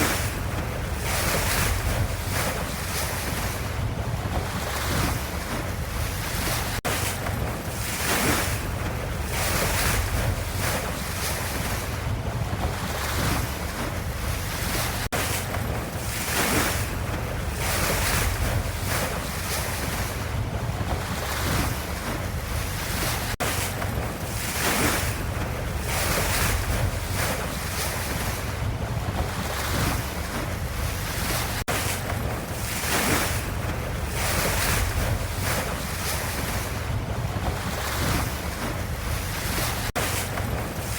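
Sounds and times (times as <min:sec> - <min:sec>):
ocean waves washing: 0:00.0 - 0:40.9.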